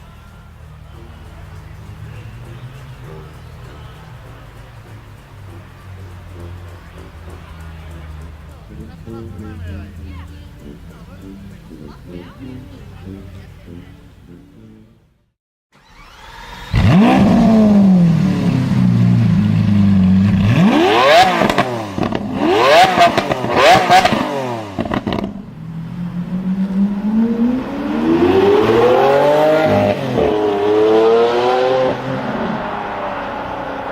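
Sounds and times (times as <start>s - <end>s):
car engine revving: 0.0s - 33.9s.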